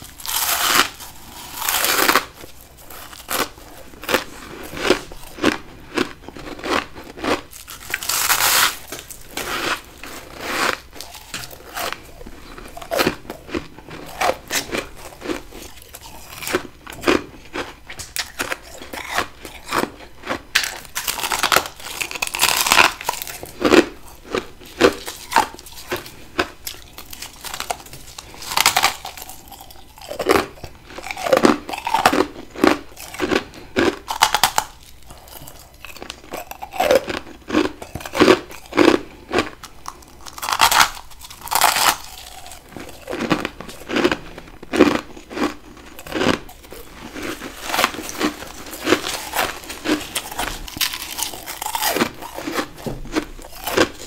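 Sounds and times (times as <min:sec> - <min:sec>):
person crunching ice: 0:00.0 - 0:54.0.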